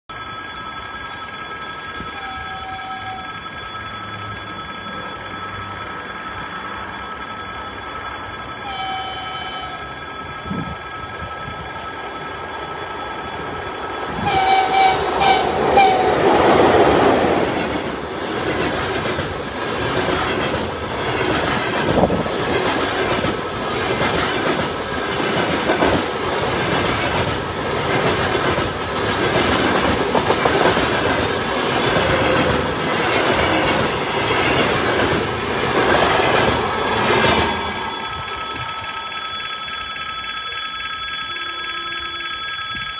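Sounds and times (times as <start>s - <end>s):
carriage wheel squeal: 2.0s - 10.8s
train wheel clatter: 13.0s - 38.9s
train horn blasts: 14.2s - 16.2s.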